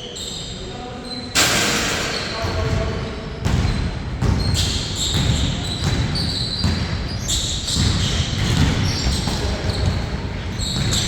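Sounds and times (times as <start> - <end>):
sneakers squeaking on floor: 0.0 - 11.0
basketball bouncing on a court: 2.4 - 11.0.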